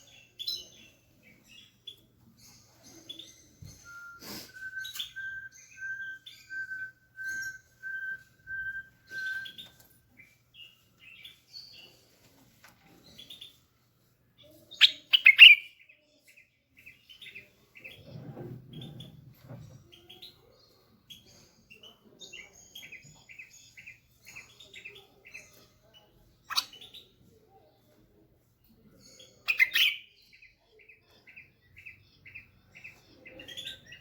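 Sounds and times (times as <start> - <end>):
bird song and calls: 0.0 - 12.2, 12.8 - 34.0
short bird chirps: 3.2 - 7.6
short whistled bird notes: 3.8 - 9.7.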